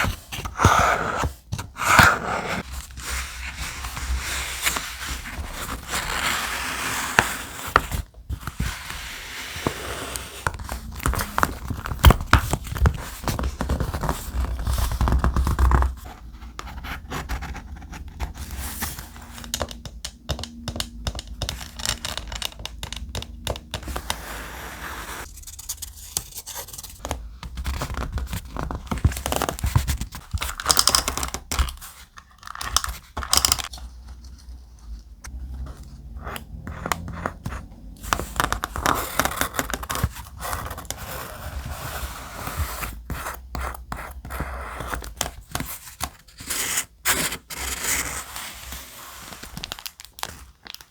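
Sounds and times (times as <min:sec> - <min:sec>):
thick paper rustling and scraping: 0:01.9 - 0:17.6.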